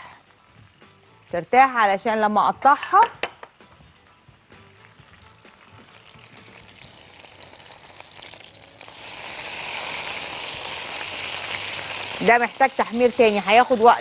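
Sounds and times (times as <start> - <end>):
food sizzling in oil: 4.6 - 14.0.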